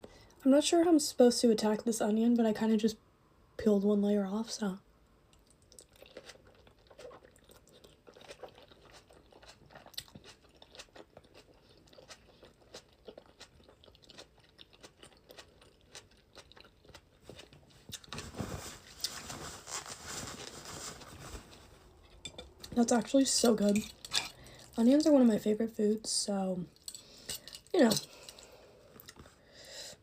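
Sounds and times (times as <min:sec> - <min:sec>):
chewing and crunching onion: 0:05.3 - 0:19.3.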